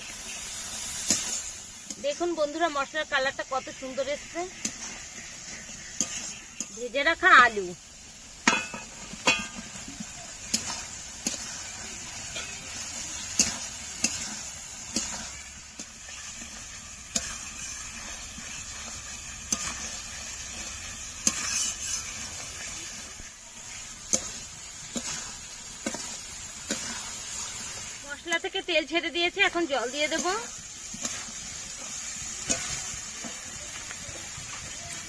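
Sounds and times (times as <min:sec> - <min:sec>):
food sizzling in hot oil: 0:00.0 - 0:35.0
spatula knocking and scraping pan: 0:04.5 - 0:06.8, 0:08.4 - 0:11.5, 0:12.2 - 0:22.7, 0:23.6 - 0:27.7, 0:29.4 - 0:34.8.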